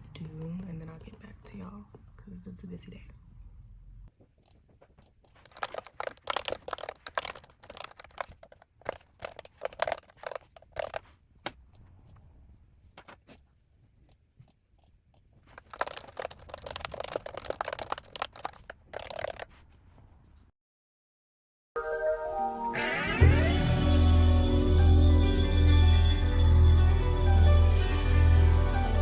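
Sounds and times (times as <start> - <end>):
computer keyboard key clicks: 5.3 - 11.0, 15.5 - 19.5.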